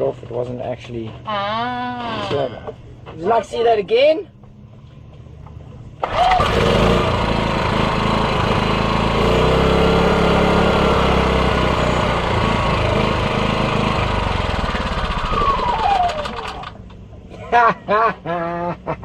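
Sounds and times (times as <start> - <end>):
motor winding down whine: 6.0 - 16.8
small motor running: 6.1 - 16.7.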